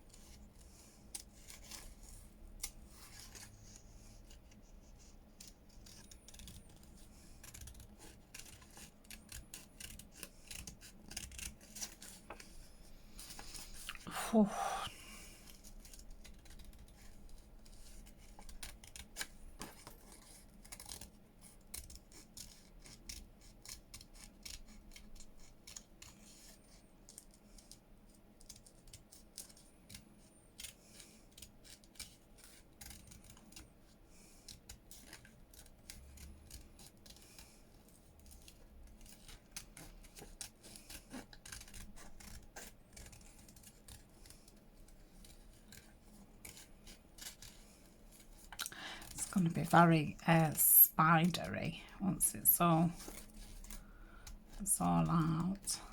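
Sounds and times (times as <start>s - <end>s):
scissors snipping paper: 5.3s - 12.7s, 15.2s - 26.5s, 30.6s - 49.2s.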